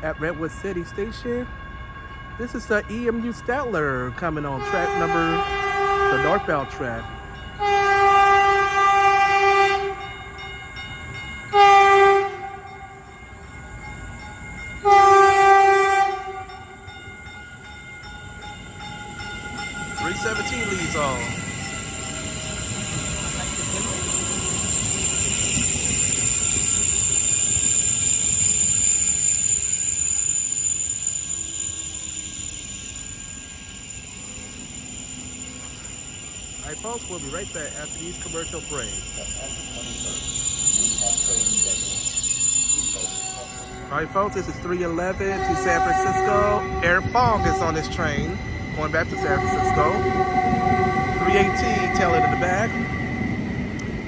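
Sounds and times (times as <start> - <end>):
train running: 0.0 - 54.0
train horn blasts: 4.5 - 10.2, 11.5 - 13.1, 14.8 - 16.9, 43.0 - 53.2.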